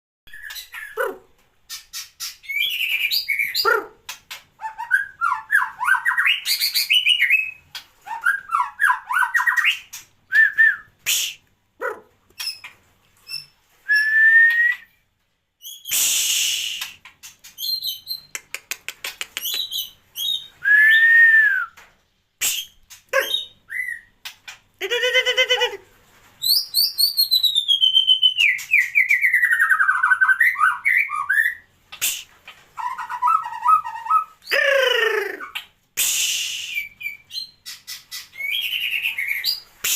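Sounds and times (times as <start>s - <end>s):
bird singing whistled phrases: 0.3s - 1.0s, 13.4s - 14.9s, 19.5s - 21.8s, 26.4s - 32.2s, 32.8s - 35.6s, 36.2s - 37.6s, 38.4s - 39.9s.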